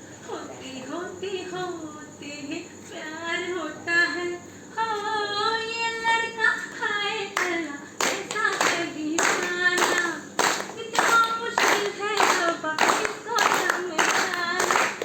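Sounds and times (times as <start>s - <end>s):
hand clapping: 7.4s - 15.0s.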